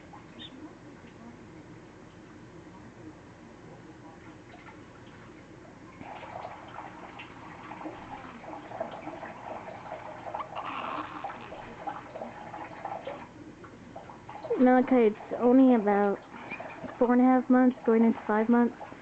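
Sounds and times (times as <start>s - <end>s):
parrot chattering and grumbling: 8.4s - 12.6s.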